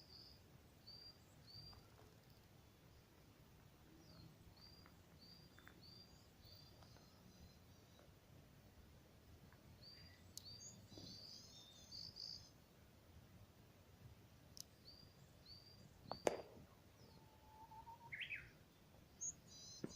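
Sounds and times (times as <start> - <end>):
small birds chirping: 0.0 - 8.4, 9.4 - 12.7, 14.5 - 19.9
bird whistling song: 9.8 - 12.5, 17.0 - 18.6, 19.2 - 19.9.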